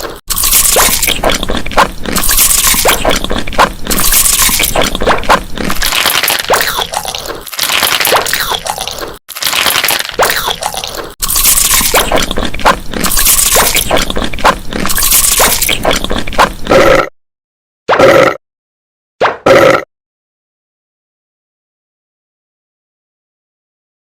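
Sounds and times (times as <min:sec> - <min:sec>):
chewing and mouth smacking: 0:00.0 - 0:16.8.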